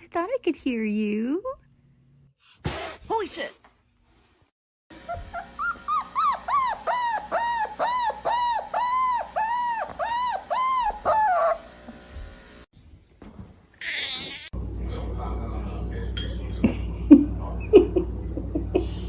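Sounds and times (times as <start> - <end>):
dog whining: 5.0 - 11.7.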